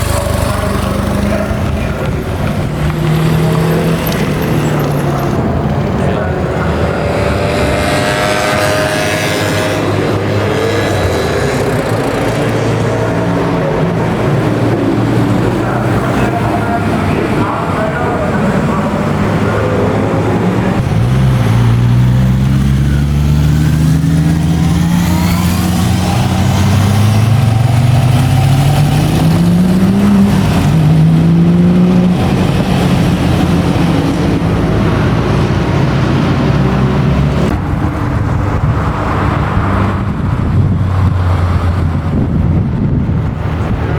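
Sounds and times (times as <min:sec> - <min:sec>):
car engine accelerating: 0:00.0 - 0:43.9.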